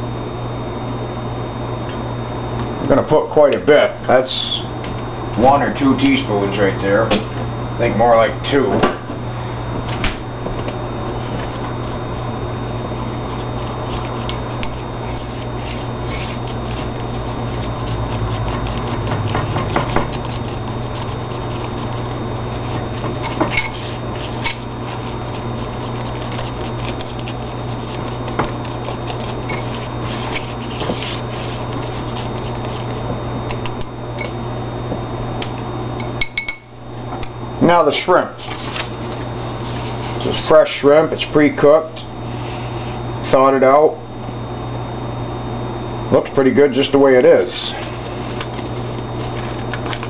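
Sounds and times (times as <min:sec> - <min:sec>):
steady low hum: 0:00.0 - 0:50.0
batter stirred in bowl: 0:11.1 - 0:33.8, 0:47.4 - 0:50.0.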